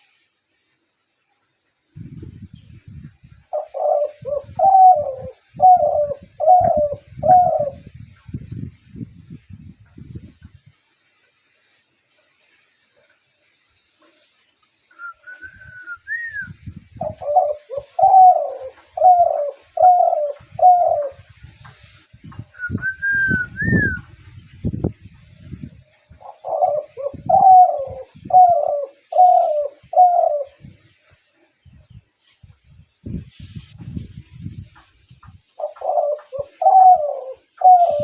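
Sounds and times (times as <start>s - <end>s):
dove cooing: 3.5s - 7.9s, 17.0s - 21.8s, 26.2s - 30.7s, 35.6s - 38.0s.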